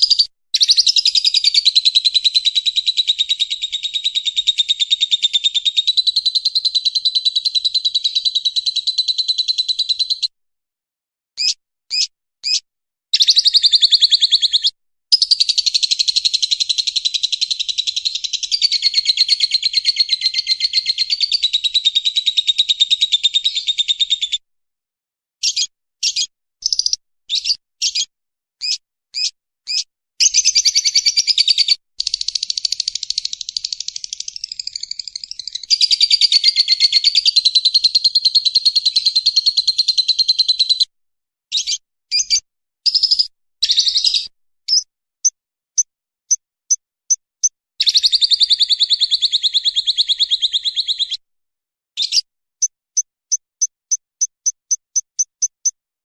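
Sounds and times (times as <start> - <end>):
lovebird chattering trill: 0.0 - 10.3, 11.4 - 12.6, 13.2 - 24.4, 25.4 - 40.9, 41.5 - 44.9, 52.0 - 52.7
lovebird chirps: 0.0 - 10.3, 11.4 - 12.6, 13.2 - 24.4, 25.4 - 40.9, 41.5 - 47.2, 47.8 - 51.2, 52.0 - 55.8.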